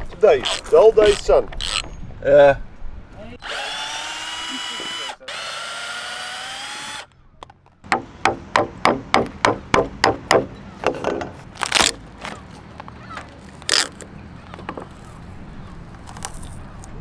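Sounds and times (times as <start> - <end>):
power drill whining: 0.4 - 1.9, 3.4 - 7.1
loud wood cracks: 9.7 - 16.9.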